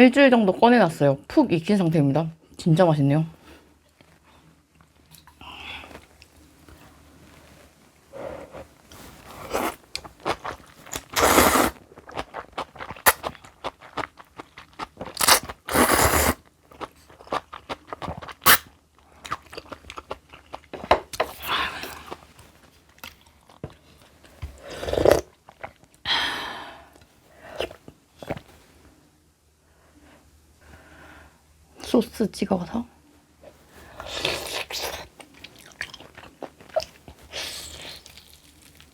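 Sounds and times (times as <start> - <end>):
crunching and chewing food: 8.5 - 26.0, 33.8 - 38.9.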